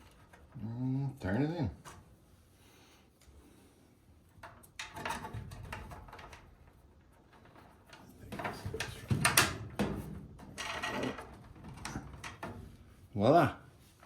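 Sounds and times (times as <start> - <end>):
plastic parts rattling and scraping: 4.5 - 13.0.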